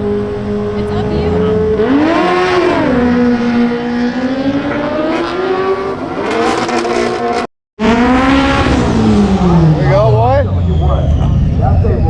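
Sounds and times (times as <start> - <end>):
race car engine accelerating: 0.0 - 12.0.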